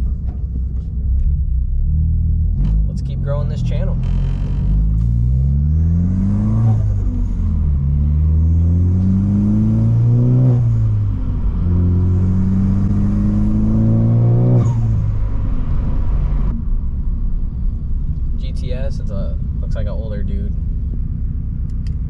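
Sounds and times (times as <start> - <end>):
car engine accelerating through gears: 0.0 - 16.7.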